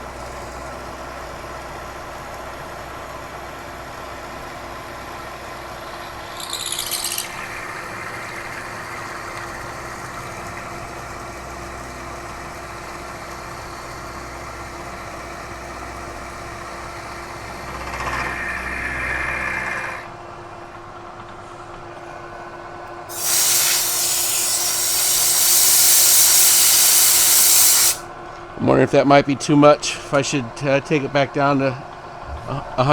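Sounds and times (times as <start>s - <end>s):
low machine hum: 0.0s - 23.1s, 28.0s - 32.9s
milling machine cutting metal: 16.5s - 20.1s, 23.1s - 25.6s
compressed air hissing: 23.1s - 28.0s.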